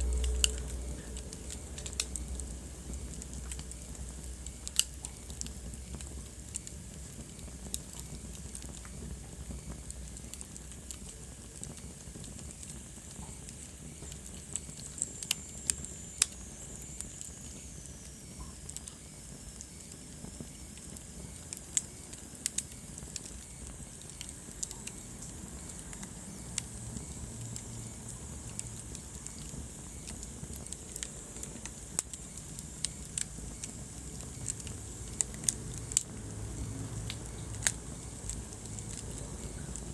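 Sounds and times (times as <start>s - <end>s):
fireplace fire crackling: 0.0s - 39.9s
low hiss: 0.0s - 39.9s.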